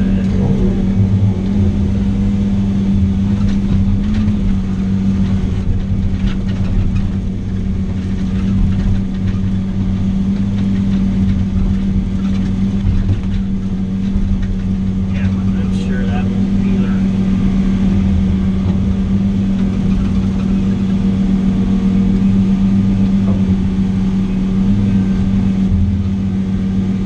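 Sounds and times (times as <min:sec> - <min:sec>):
heavy diesel engine running: 0:00.0 - 0:27.0.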